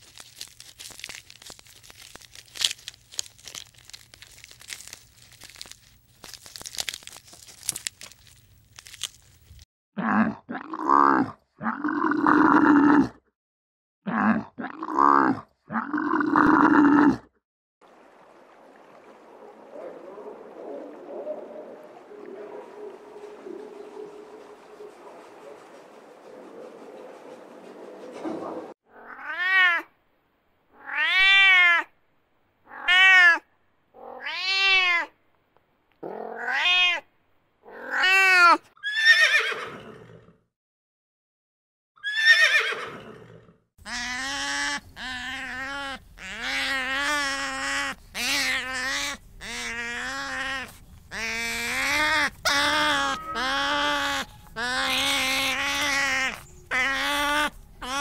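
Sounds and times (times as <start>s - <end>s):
animal calls: 19.2s - 29.5s, 43.8s - 58.0s
steady background noise: 20.0s - 28.7s.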